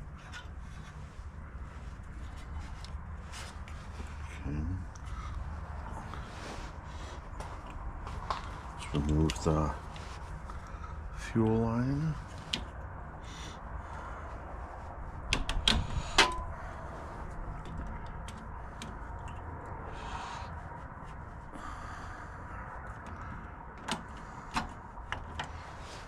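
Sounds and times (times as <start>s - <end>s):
steady low hum: 0.0s - 26.0s
hand tools clicking on metal: 15.3s - 16.6s.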